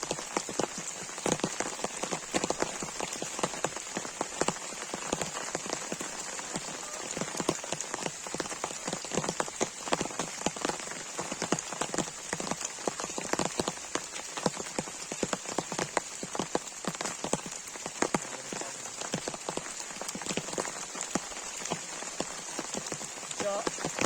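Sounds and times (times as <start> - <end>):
heavy rain falling: 0.0 - 24.0
raindrops striking a surface: 0.0 - 24.0.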